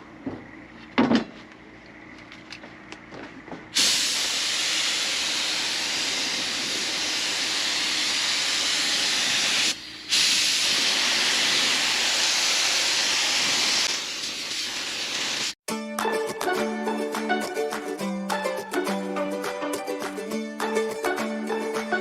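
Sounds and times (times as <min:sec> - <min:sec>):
steady loud hiss: 0:03.7 - 0:15.6.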